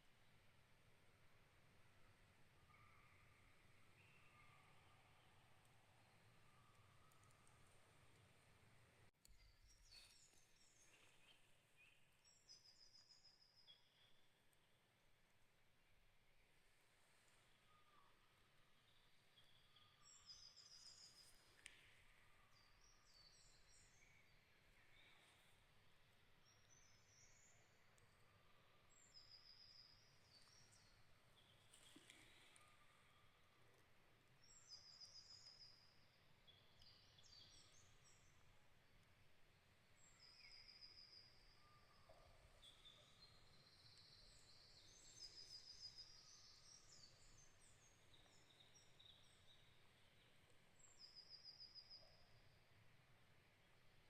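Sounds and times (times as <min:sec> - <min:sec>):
faint steady hiss: 0:00.0 - 0:54.0
songbirds chirping: 0:00.0 - 0:54.0.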